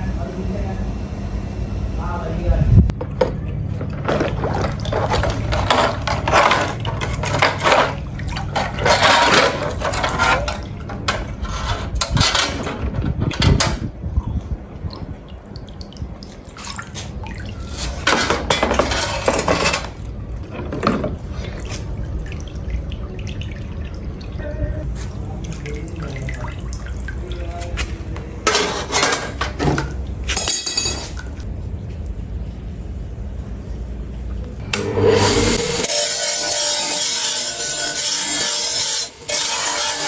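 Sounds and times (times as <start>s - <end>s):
water splashing and running: 3.9s - 11.1s, 14.7s - 31.5s.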